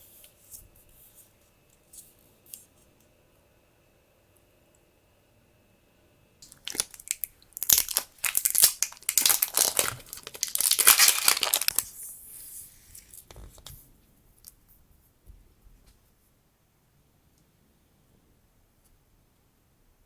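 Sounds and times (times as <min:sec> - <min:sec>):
package tearing and crinkling: 0:06.4 - 0:12.0.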